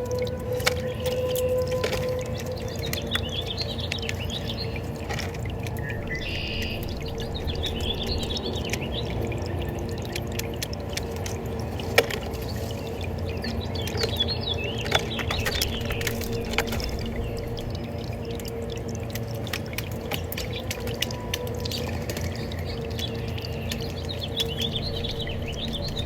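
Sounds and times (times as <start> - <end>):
flowing water: 0.0 - 26.0
small birds chirping: 2.4 - 10.3, 12.3 - 18.8, 20.1 - 26.0.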